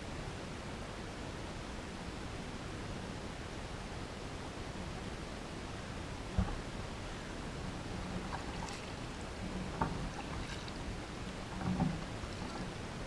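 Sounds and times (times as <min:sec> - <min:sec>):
wind: 0:00.0 - 0:13.0
moving water: 0:03.4 - 0:13.0
paddle knocks: 0:06.3 - 0:06.9, 0:07.8 - 0:12.8
paddle splashes: 0:06.3 - 0:13.0.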